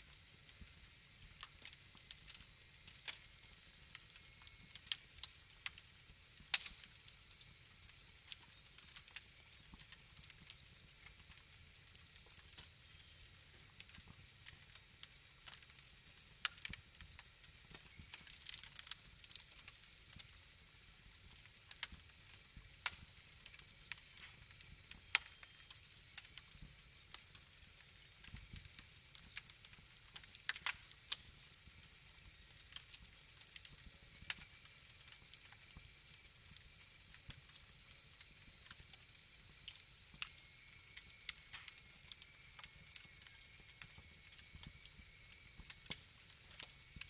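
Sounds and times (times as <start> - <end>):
faint steady hiss: 0.0 - 47.0
wood fire crackling: 0.0 - 47.0.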